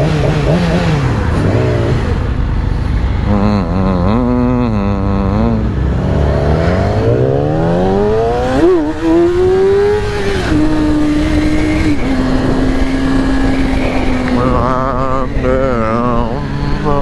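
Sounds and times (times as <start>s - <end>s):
motorcycle engine accelerating: 0.0s - 17.0s
wind rush: 5.8s - 16.8s.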